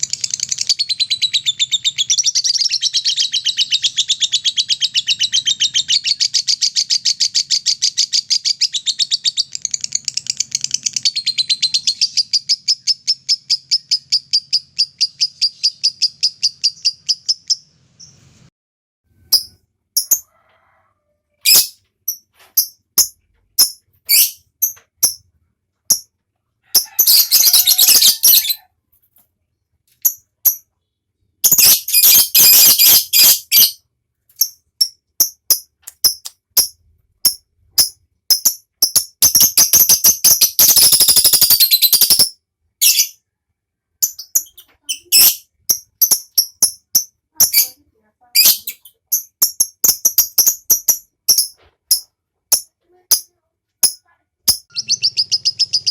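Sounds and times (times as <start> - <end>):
bird chirping: 0.0 - 18.5, 19.2 - 20.2, 21.4 - 28.7, 29.9 - 43.3, 44.0 - 55.9
fast chattering bird trills: 26.8 - 28.6, 44.1 - 47.8, 53.9 - 55.9.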